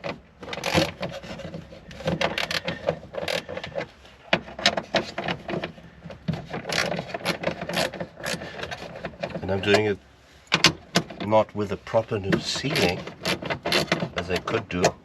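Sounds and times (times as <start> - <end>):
hand tool clicks and knocks: 0.0 - 9.9
metal and plastic parts handled: 0.0 - 9.9, 12.0 - 15.0.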